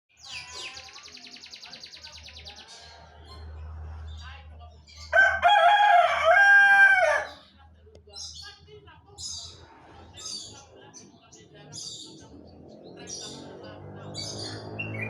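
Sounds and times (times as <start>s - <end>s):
rooster crowing: 5.1s - 7.4s.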